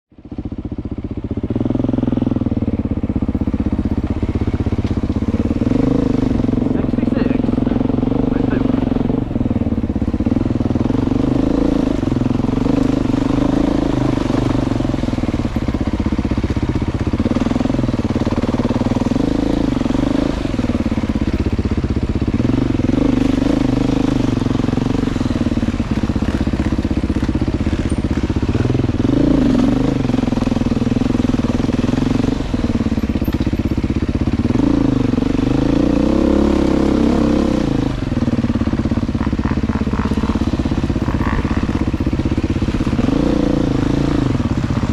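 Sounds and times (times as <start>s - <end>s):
motorcycle engine revving: 0.1s - 44.9s.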